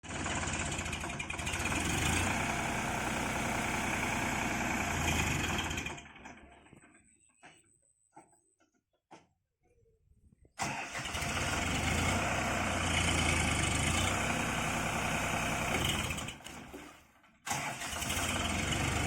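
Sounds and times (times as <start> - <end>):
tractor diesel engine rumbling: 0.0 - 7.7, 10.4 - 19.0.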